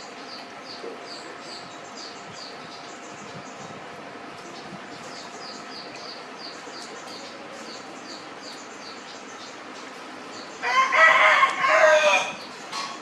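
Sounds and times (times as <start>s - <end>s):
bird chirping: 0.0s - 3.8s, 4.4s - 10.8s.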